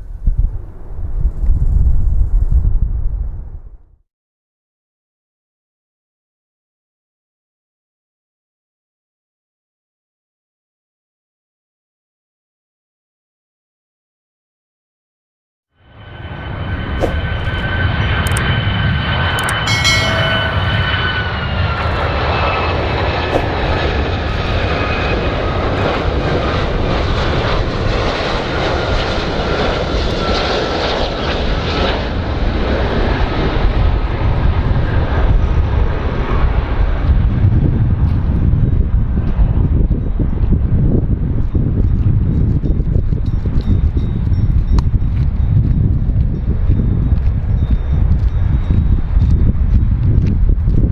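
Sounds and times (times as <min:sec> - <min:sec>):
airplane engines rumbling and whining: 0:00.0 - 0:01.4, 0:15.8 - 0:50.9.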